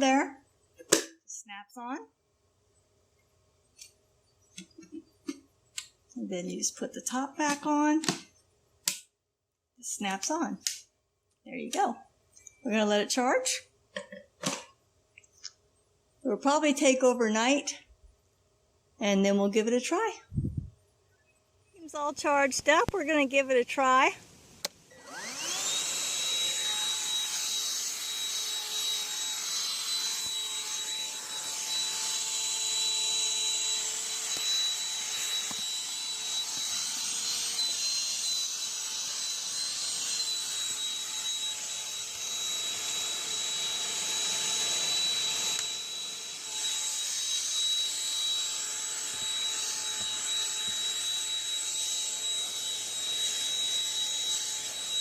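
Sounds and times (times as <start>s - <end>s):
handheld vacuum running: 24.9s - 55.0s.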